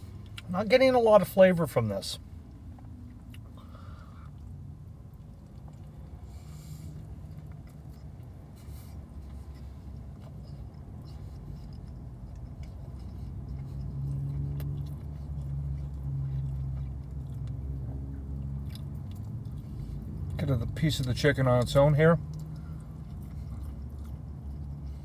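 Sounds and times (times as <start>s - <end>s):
car interior hum: 0.0s - 25.0s
person chewing: 2.5s - 20.4s, 21.7s - 25.0s
wet mouth clicks: 9.2s - 17.7s, 22.2s - 24.8s.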